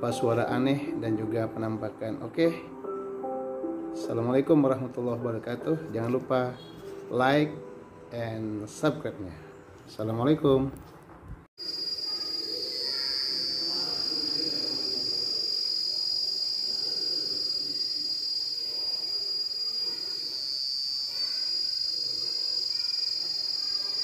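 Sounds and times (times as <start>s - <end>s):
insects buzzing: 11.6s - 24.0s.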